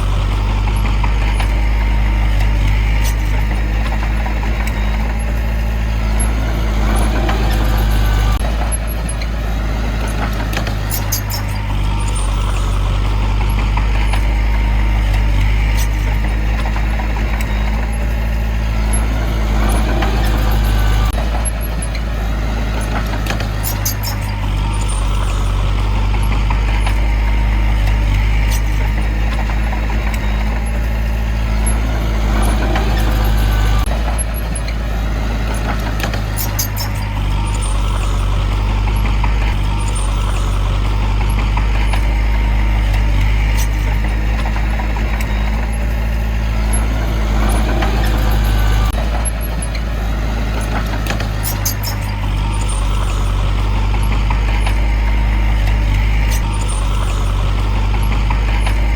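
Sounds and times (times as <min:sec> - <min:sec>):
heavy diesel engine under load: 0:00.0 - 0:58.9
high metallic clicks: 0:22.8 - 0:25.2, 0:35.5 - 0:40.6, 0:50.5 - 0:58.9.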